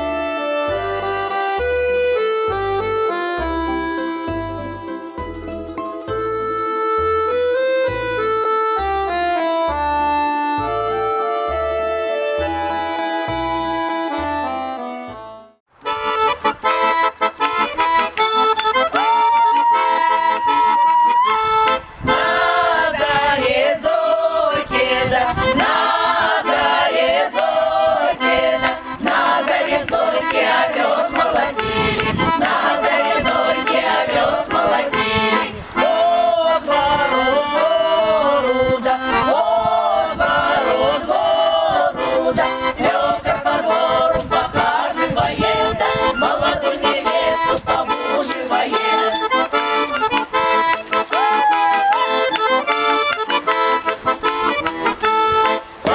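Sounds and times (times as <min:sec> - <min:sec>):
accordion folk music: 0:00.0 - 0:55.9.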